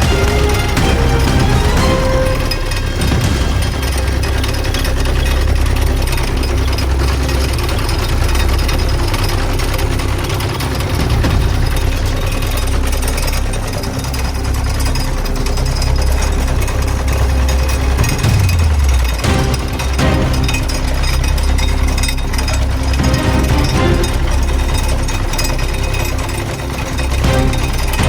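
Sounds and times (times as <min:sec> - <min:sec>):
tractor engine chugging: 0:00.0 - 0:28.0.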